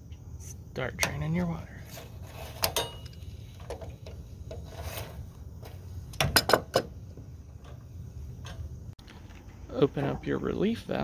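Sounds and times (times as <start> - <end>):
rubbing and scraping handling noise: 1.7 - 6.2.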